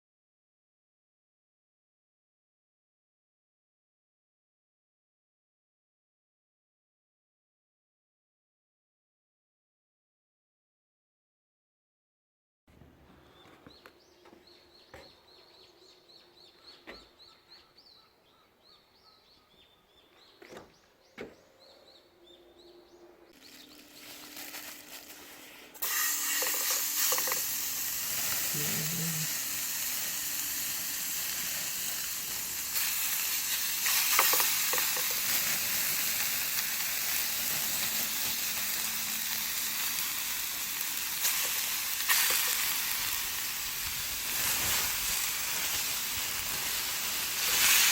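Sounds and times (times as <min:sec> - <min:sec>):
faint bird chirps: 0:13.2 - 0:24.6
hiss: 0:25.1 - 0:47.9
food sizzling in a hot pan: 0:25.8 - 0:47.9.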